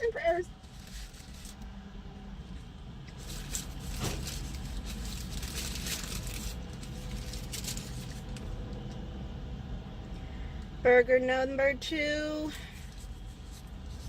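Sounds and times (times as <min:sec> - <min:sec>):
paper wrapper rustling: 0:00.6 - 0:01.7, 0:03.1 - 0:08.6.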